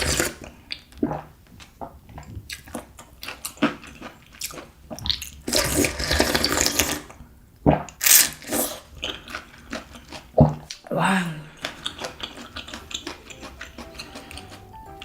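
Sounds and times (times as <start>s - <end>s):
slurping noodle soup: 0.0s - 10.9s, 11.5s - 14.7s
wet mouth clicks: 11.6s - 14.6s.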